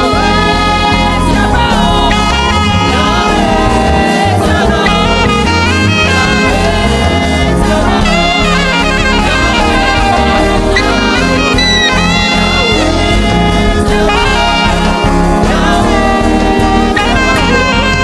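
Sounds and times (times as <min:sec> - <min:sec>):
gospel band playing: 0:00.0 - 0:18.0
saxophone lead: 0:00.0 - 0:18.0.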